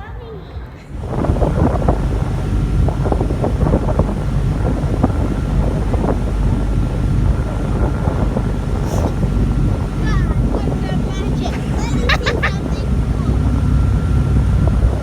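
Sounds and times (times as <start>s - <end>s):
wind buffeting microphone: 0.6s - 15.0s.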